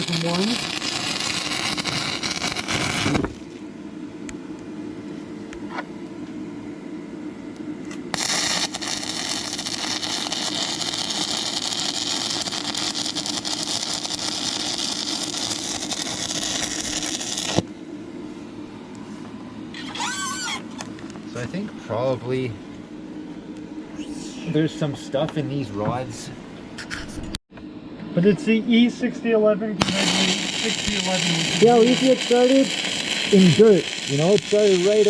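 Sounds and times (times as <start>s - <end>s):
welding arc crackling: 0.0s - 3.6s, 7.9s - 17.7s, 29.8s - 35.0s
low steady hum: 0.0s - 35.0s.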